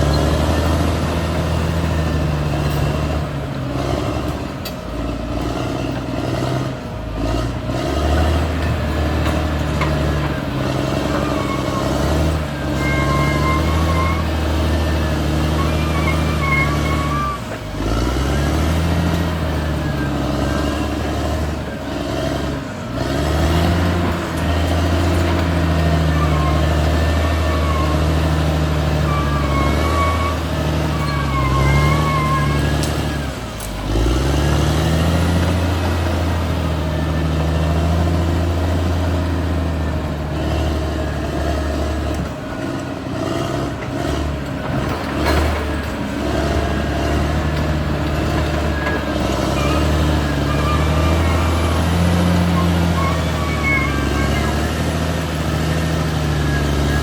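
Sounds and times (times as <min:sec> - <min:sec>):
bulldozer diesel engine: 0:00.0 - 0:57.0.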